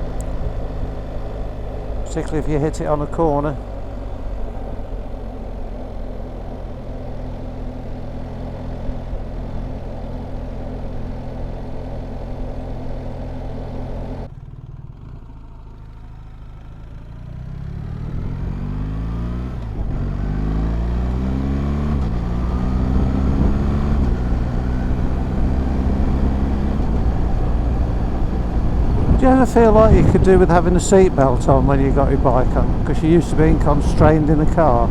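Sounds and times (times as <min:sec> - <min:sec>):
motorcycle engine: 0:00.0 - 0:34.9
wind noise: 0:26.8 - 0:34.9.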